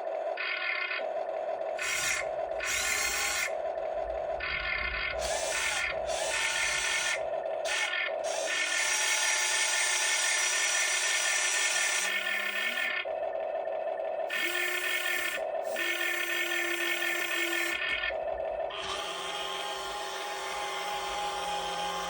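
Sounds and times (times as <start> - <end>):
electric motors whirring: 0.0 - 22.0
steady hum: 1.0 - 22.0.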